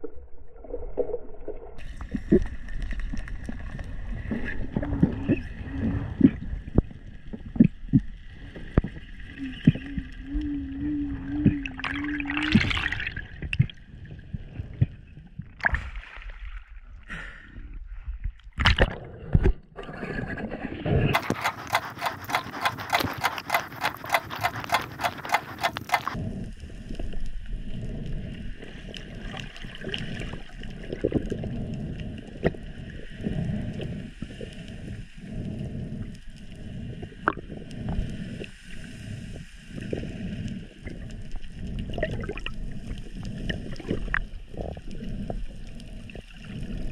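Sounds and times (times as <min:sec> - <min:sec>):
underwater gurgling: 0:00.0 - 0:16.8, 0:18.6 - 0:46.9
rapid regular ticking: 0:21.2 - 0:26.2.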